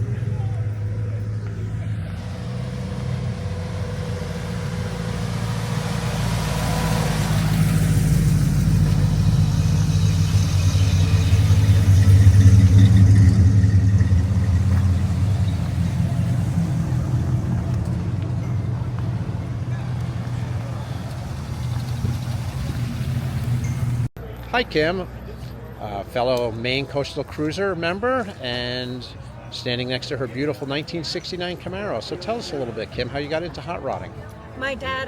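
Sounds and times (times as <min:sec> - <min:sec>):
car engine driving past: 0:00.0 - 0:24.1.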